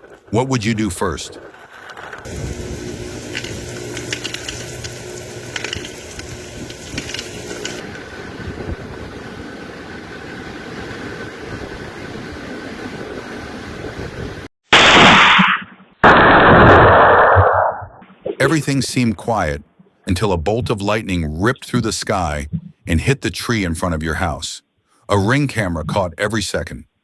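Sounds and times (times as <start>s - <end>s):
power line arcing and crackling: 0.0s - 11.2s
electrical hiss: 2.3s - 8.0s
loud noisy burst: 2.3s - 8.6s
low electrical hum: 2.3s - 9.7s.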